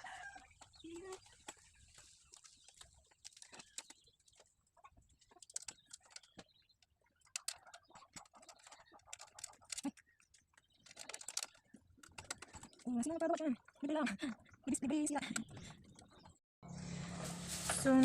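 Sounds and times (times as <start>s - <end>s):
small parts clicking and tapping: 5.2s - 13.8s.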